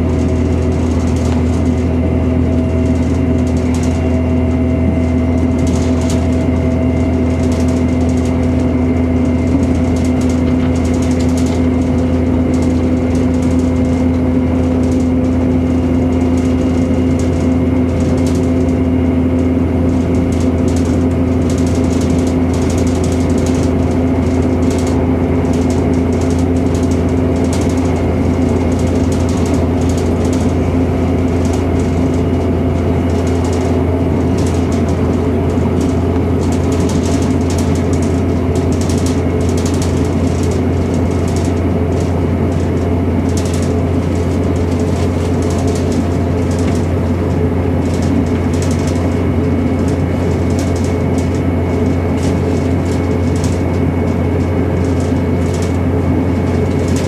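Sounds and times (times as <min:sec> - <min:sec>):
diesel train engine and wheels drone: 0:00.0 - 0:57.0.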